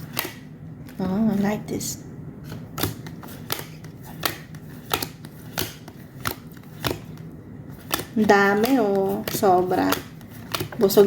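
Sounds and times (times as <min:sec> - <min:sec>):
cards being flicked through: 0:02.4 - 0:11.0.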